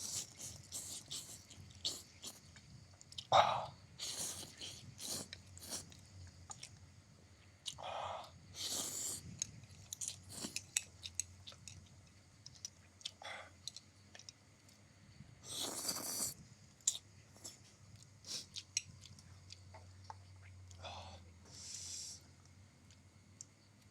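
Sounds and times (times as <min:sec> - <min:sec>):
wet chewing: 0:00.0 - 0:03.3, 0:04.0 - 0:06.8, 0:08.6 - 0:14.8, 0:15.5 - 0:20.5
noodle slurps: 0:04.0 - 0:05.9, 0:08.6 - 0:09.3, 0:10.2 - 0:10.6, 0:15.5 - 0:16.4.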